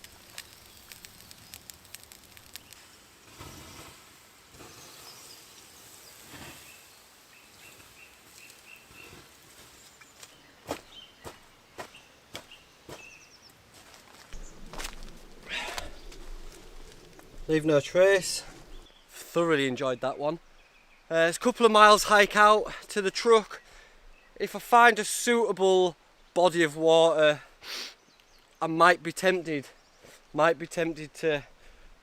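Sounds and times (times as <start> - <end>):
footsteps in woodland: 0.0 - 3.9, 7.6 - 19.3.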